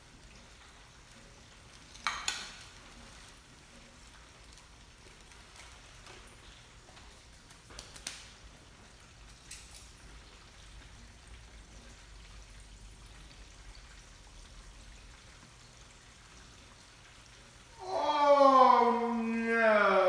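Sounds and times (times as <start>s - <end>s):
chicken deep-frying in oil: 0.0s - 20.0s
oil crackling: 0.1s - 11.1s.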